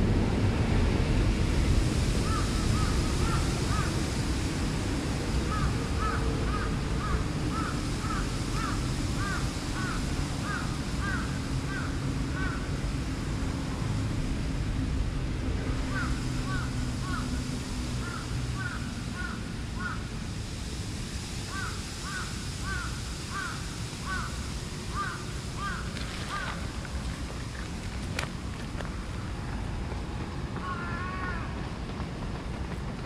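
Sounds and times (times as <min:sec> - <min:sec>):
steady low background noise: 0:00.0 - 0:33.0
bird calling: 0:15.9 - 0:17.3, 0:21.5 - 0:26.8, 0:30.6 - 0:31.6.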